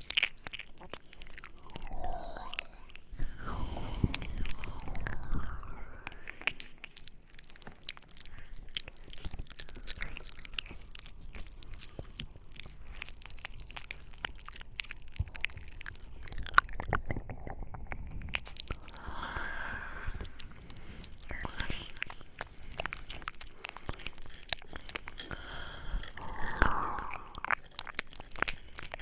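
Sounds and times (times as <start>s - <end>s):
lip and tongue clicks: 0.0s - 29.0s
soft breathy sound: 1.0s - 13.2s, 18.0s - 29.0s.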